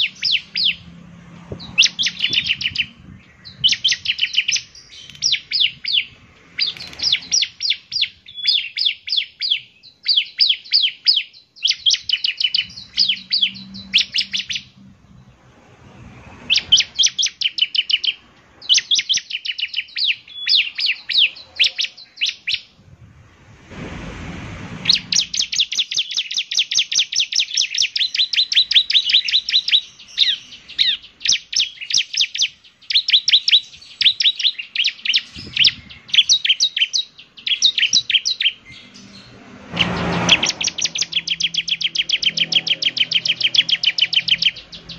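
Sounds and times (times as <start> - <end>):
bird singing high chirps: 0.0 - 15.7, 16.3 - 22.8, 24.8 - 44.9
rushing noise: 12.6 - 17.2, 22.7 - 25.9, 38.6 - 44.9.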